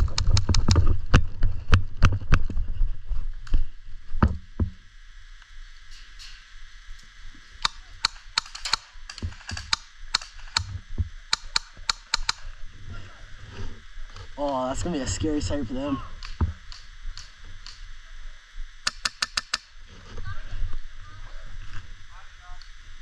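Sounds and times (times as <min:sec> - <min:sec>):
sharp clicks and snaps: 0:00.0 - 0:00.8, 0:07.0 - 0:12.5, 0:16.2 - 0:17.8, 0:18.8 - 0:19.7.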